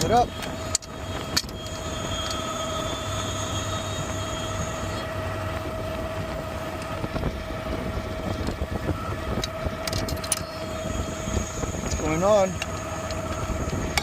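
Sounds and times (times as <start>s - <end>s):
hydraulics whining: 0.0s - 14.0s
truck engine running: 0.0s - 14.0s
thin high whistle: 0.9s - 5.5s.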